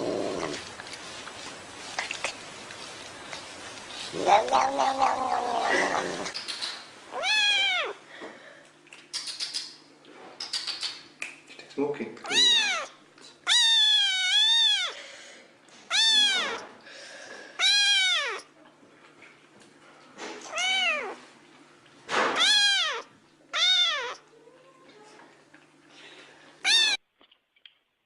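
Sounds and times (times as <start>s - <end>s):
cat meowing: 4.2s - 6.4s, 7.1s - 8.0s, 12.3s - 15.0s, 15.9s - 16.7s, 17.6s - 18.5s, 20.4s - 21.2s, 22.3s - 24.2s, 26.6s - 27.0s.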